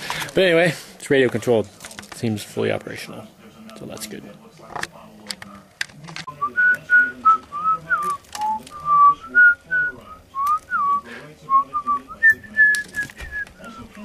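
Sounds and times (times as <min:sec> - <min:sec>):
person whistling a tune: 0:06.3 - 0:13.5.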